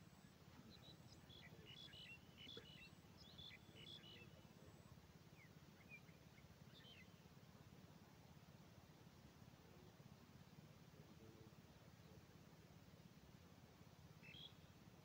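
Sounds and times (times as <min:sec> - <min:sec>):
faint bird chirps: 0:00.0 - 0:07.7, 0:14.0 - 0:15.0.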